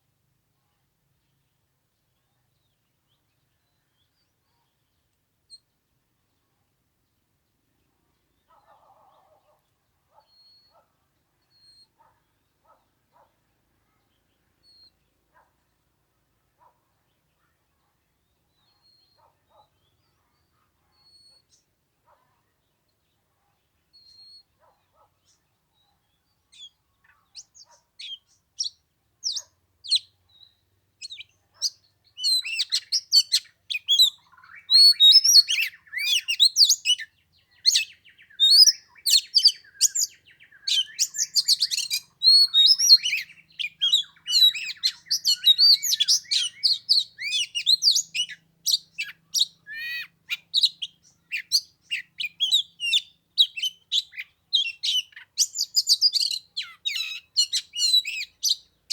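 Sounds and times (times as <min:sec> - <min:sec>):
bird singing whistles and chirps: 0:10.3 - 0:10.8, 0:11.5 - 0:11.9, 0:24.0 - 0:24.5, 0:27.4 - 0:58.7.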